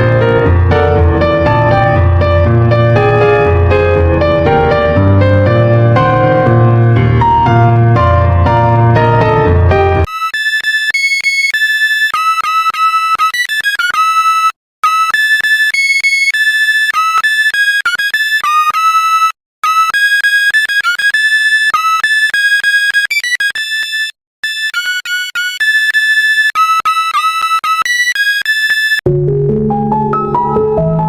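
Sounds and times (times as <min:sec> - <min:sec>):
high-pitched synthesizer melody: 0:00.0 - 0:10.4.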